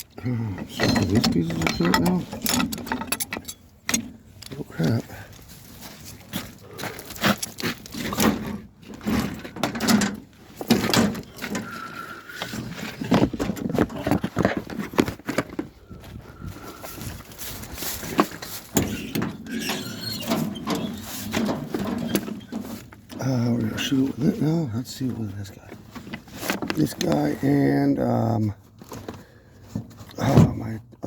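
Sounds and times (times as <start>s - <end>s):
short squeaks: 0.6s - 3.7s, 18.7s - 21.3s
tools being rummaged through: 0.6s - 15.8s, 16.8s - 23.2s.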